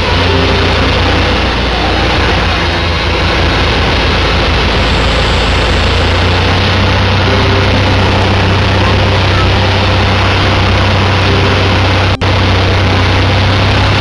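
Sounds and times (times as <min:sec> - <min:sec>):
aircraft engine noise: 0:00.0 - 0:14.0.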